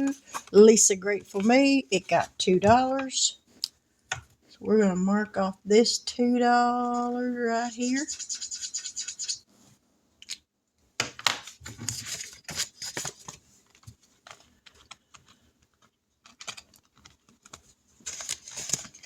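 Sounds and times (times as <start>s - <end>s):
paper rustling: 0.0s - 3.2s, 11.4s - 19.0s
marker scratching on paper: 6.7s - 9.5s.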